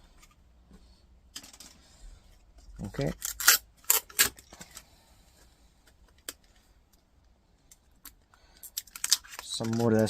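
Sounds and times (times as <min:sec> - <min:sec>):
metal and plastic parts clattering: 0:01.3 - 0:01.9.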